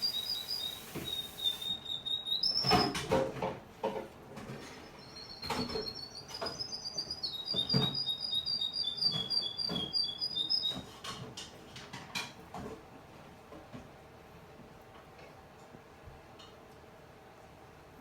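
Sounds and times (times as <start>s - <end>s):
canary singing trills: 0.0s - 2.8s.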